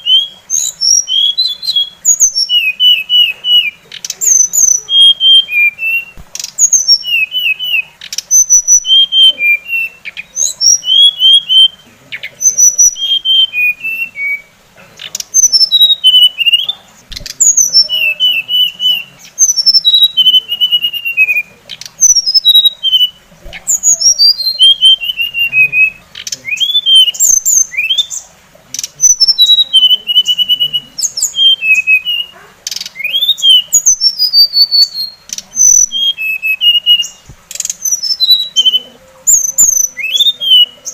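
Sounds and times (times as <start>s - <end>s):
bird chattering notes: 0.0s - 40.9s
songbird singing whistled notes: 0.0s - 40.9s
sharp bird clicks: 6.0s - 8.9s, 15.0s - 17.7s.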